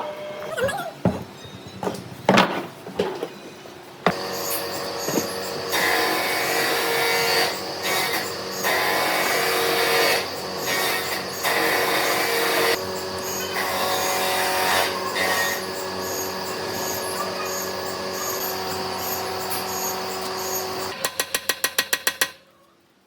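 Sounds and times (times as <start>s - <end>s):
lathe running: 4.2s - 21.1s.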